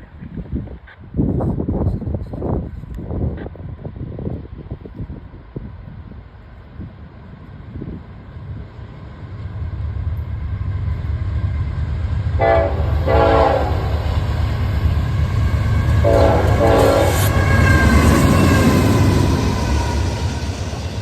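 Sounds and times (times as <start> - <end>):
diesel locomotives rumbling: 0.0 - 21.0
train air horn blasts: 12.4 - 14.2, 15.9 - 19.0.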